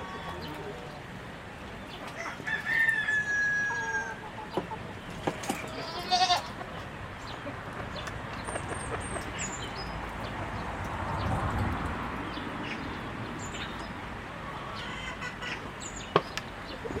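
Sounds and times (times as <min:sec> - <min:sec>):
rooster crowing: 0:02.2 - 0:04.2.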